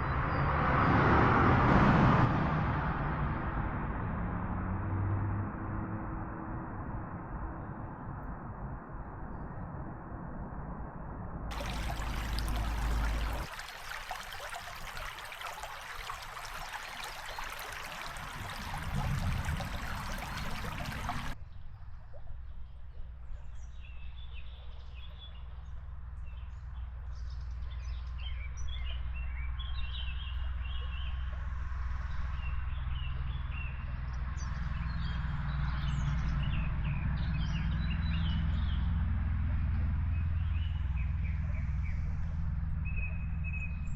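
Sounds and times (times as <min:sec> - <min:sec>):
birds chirping: 0:11.5 - 0:21.4.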